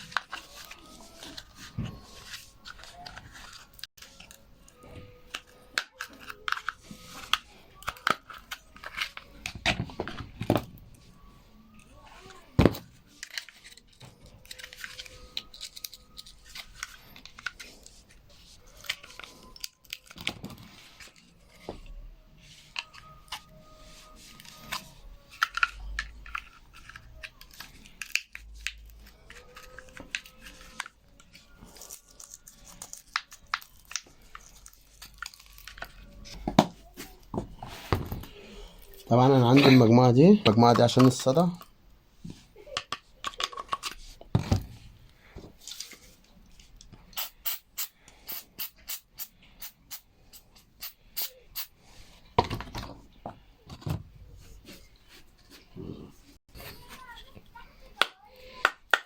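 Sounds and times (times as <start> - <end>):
clicks scrapes and rustling of parts: 12.8 - 21.9, 24.2 - 51.7.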